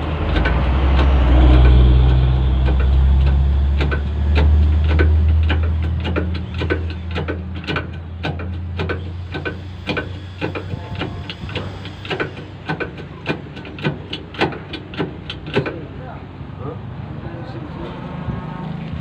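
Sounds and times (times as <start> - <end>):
rhythmic mechanical clicking: 0.0 - 16.2.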